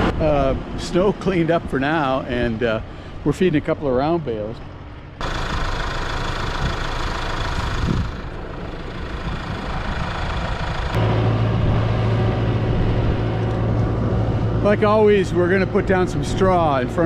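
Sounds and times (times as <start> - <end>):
tractor engine running: 5.2 - 17.0.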